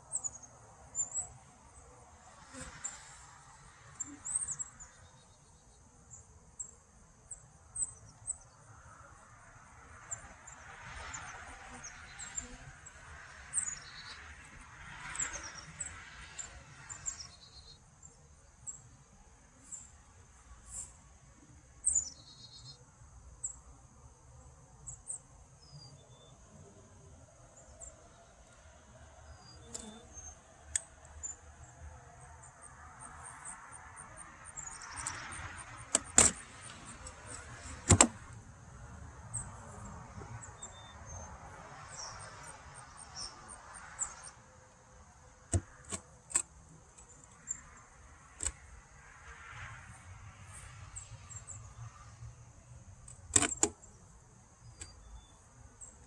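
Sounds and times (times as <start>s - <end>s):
insect trill: 0.0s - 21.0s, 21.8s - 56.0s
wooden clicks and knocks: 37.8s - 38.2s.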